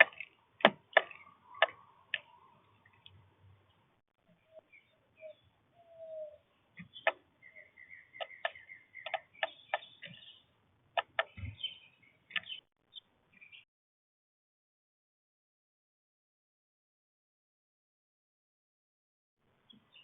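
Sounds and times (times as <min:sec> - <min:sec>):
sharp irregular clicks: 0:00.0 - 0:02.3, 0:08.2 - 0:10.2, 0:11.0 - 0:11.6
drawn-out bird call: 0:00.0 - 0:03.3, 0:04.3 - 0:12.7
small birds chirping: 0:00.0 - 0:13.7, 0:19.6 - 0:20.0.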